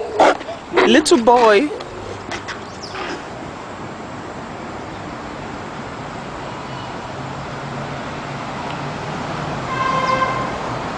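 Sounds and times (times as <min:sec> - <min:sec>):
road traffic noise: 0:00.0 - 0:10.9.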